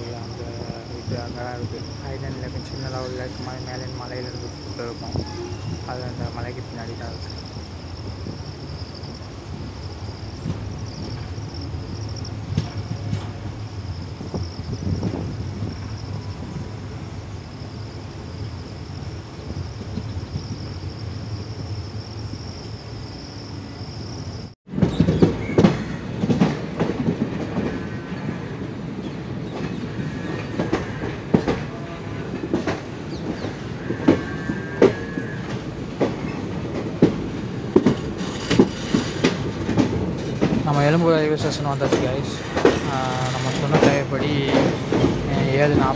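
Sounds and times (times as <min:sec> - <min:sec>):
train wheels clattering: 0:00.0 - 0:16.5, 0:24.7 - 0:28.4, 0:29.4 - 0:45.9
train rushing with high whine: 0:00.0 - 0:45.9.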